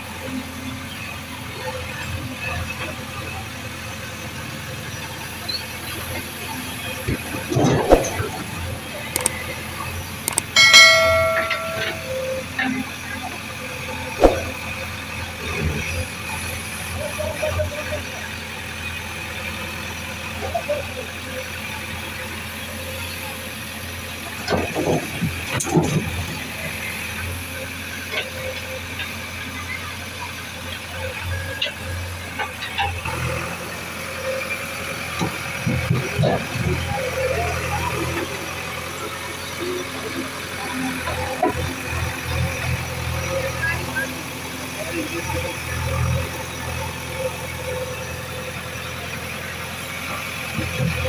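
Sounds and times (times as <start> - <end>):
faint wavering sounds: 10.6 - 12.3.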